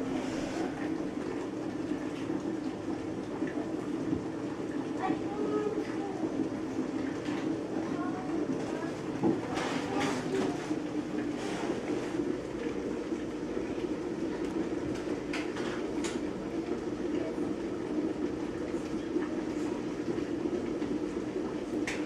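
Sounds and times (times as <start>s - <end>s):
vacuum cleaner motor droning: 0.0s - 1.2s.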